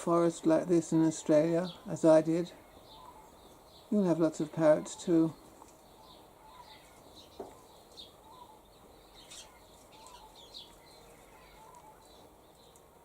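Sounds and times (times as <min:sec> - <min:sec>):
faint bird chirps and tweets: 0:00.2 - 0:13.0
soft low bird call: 0:02.5 - 0:03.6, 0:05.0 - 0:12.7.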